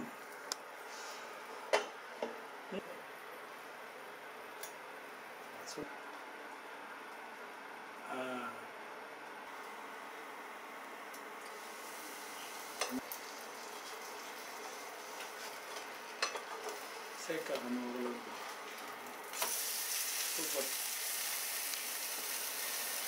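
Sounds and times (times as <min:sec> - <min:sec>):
batter sizzling on a pan: 0:11.5 - 0:23.0.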